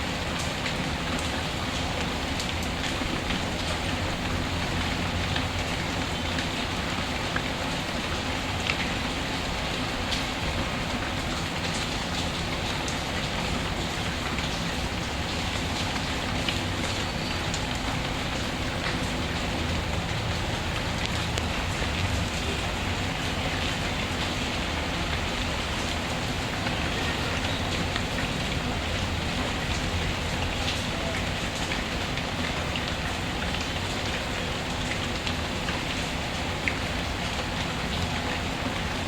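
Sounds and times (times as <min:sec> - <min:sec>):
steady rainfall: 0:00.0 - 0:39.0.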